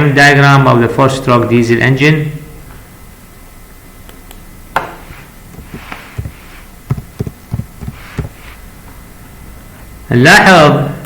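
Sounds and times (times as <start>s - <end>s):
dull low knocks: 5.5s - 8.4s.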